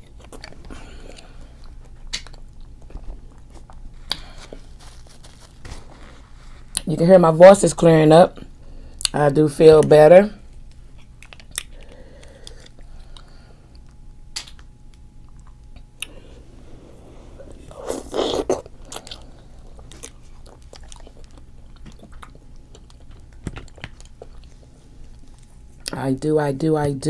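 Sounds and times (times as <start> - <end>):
wet chewing: 10.5 - 16.2, 17.6 - 26.0.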